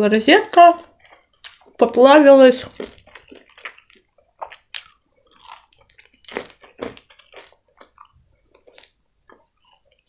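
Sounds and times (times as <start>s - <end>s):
biting and chewing crispy chicken: 2.7s - 10.0s.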